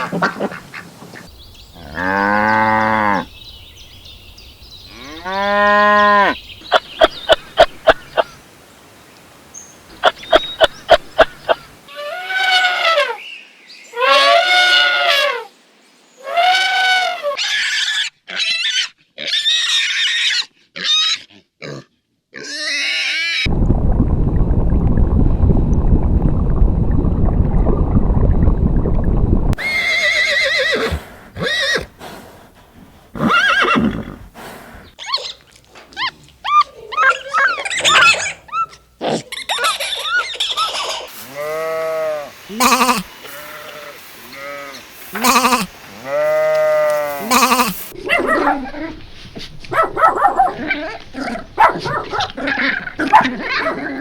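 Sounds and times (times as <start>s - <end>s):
animal squeals: 22.4s - 23.5s, 36.0s - 41.0s
dense low noise: 23.5s - 29.6s
farm animals bleating: 41.3s - 47.9s.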